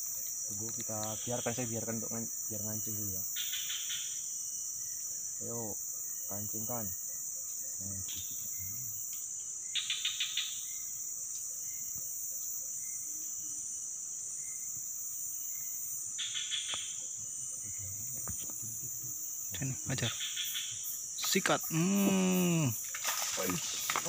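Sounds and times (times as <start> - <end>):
insect chorus: 0.0 - 24.0.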